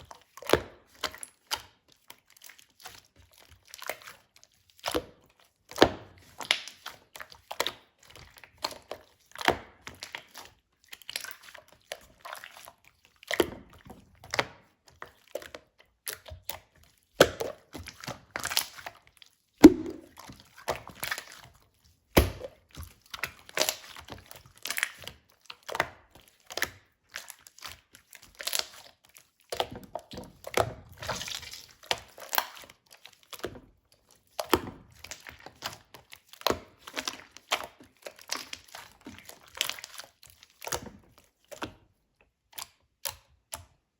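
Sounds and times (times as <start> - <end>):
slime squished by hand: 19.6 - 21.4.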